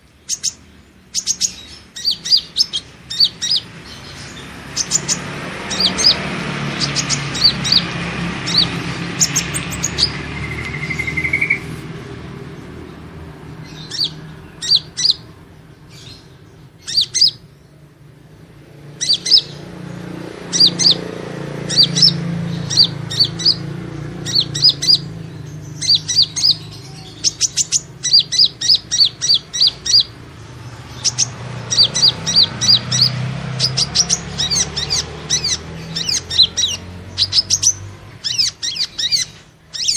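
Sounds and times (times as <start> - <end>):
bird high sharp chirps: 0.0 - 11.9, 13.5 - 17.8, 18.9 - 19.7, 20.4 - 39.9
bird rising trill: 4.8 - 11.7.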